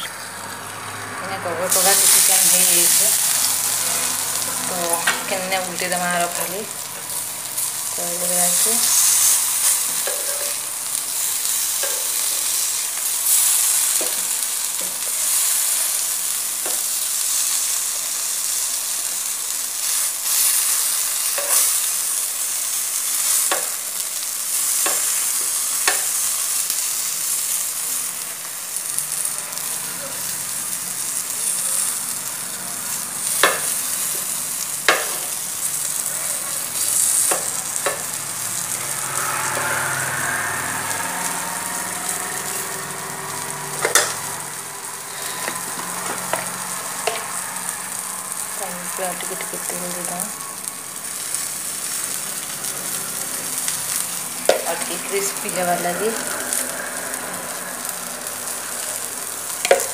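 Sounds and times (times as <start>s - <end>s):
vegetables sizzling in oil: 0.0s - 59.9s
metal spatula scraping a pan: 36.3s - 44.4s, 45.0s - 47.4s.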